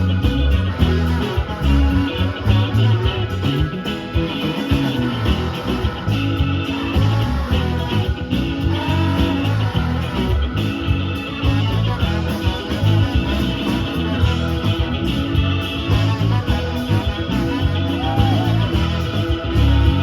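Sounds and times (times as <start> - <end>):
electric guitar: 0.0 - 20.0
rock band playing: 0.0 - 20.0.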